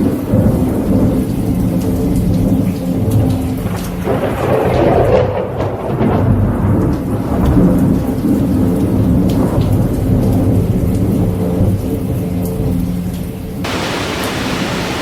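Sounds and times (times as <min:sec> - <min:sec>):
steady rain: 0:00.0 - 0:15.0
raindrop ticks: 0:01.1 - 0:04.2, 0:04.9 - 0:14.3
thunder rumbling: 0:03.6 - 0:08.0, 0:13.6 - 0:15.0.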